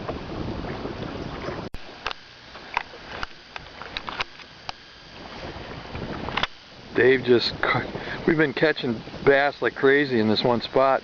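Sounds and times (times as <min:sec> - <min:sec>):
wind and water noise: 0:00.0 - 0:11.0.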